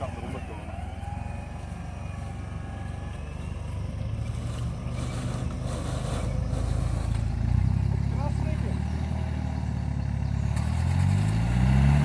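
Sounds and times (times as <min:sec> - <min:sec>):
vehicle engine idling: 0:00.0 - 0:11.3.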